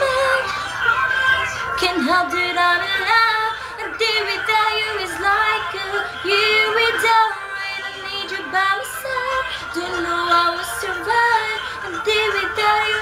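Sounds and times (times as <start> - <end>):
woman singing a pop ballad: 0.0 - 13.0.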